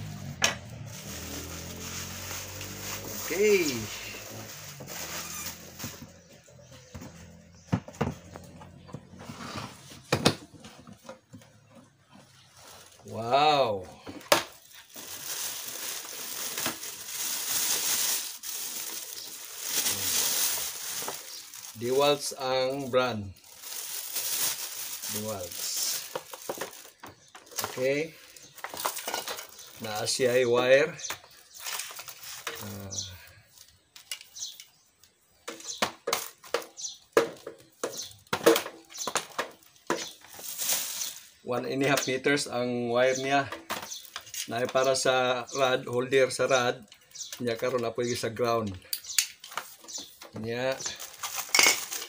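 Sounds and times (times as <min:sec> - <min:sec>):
plastic bag crinkling and rustling: 0:00.0 - 0:07.4, 0:12.2 - 0:30.5, 0:31.3 - 0:34.6, 0:35.5 - 0:42.1, 0:43.4 - 0:45.7, 0:49.4 - 0:52.0.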